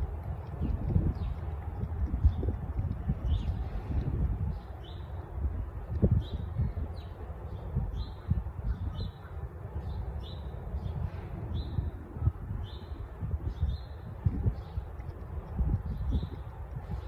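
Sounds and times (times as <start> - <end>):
steady low rumble: 0.0 - 17.0
small bird chirping: 13.6 - 17.0.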